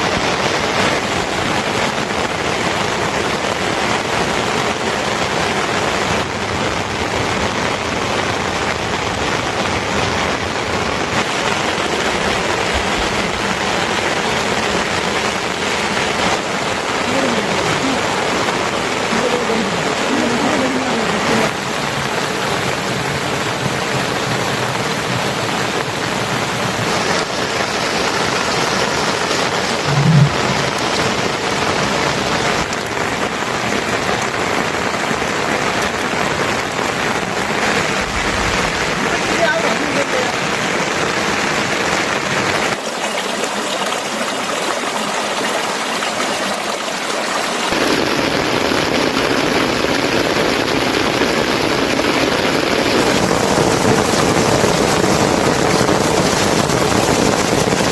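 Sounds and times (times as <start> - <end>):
heavy rain hissing: 0.0 - 57.9
faint rising and falling calls: 29.8 - 31.1
brief low sound: 29.8 - 31.2.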